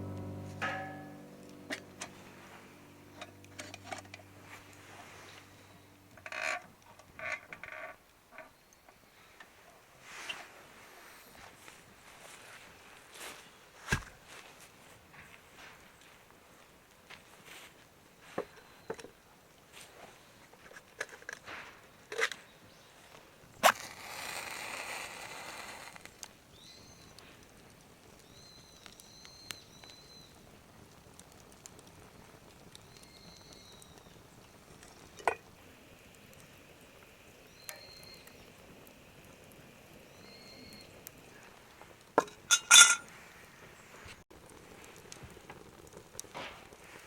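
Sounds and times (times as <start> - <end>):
knocks and clinks of handling: 42.2 - 43.1.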